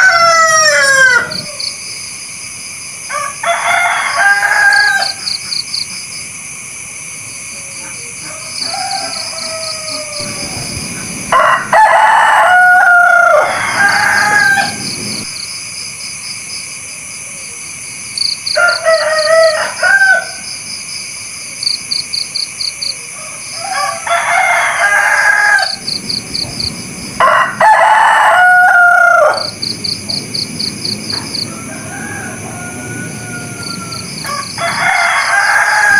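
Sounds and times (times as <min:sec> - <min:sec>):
rooster crowing: 0:00.0 - 0:01.9, 0:03.0 - 0:05.7, 0:07.7 - 0:15.4, 0:18.2 - 0:20.6, 0:22.8 - 0:35.9.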